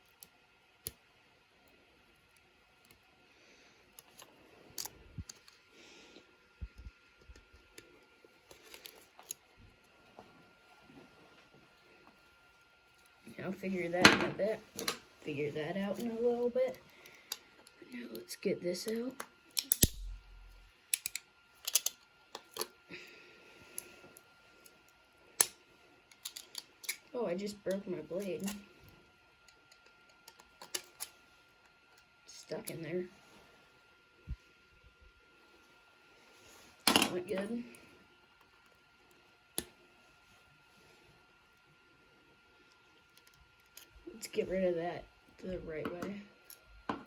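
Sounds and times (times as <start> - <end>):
plastic clicks and snaps: 19.2 - 20.1, 20.9 - 22.7.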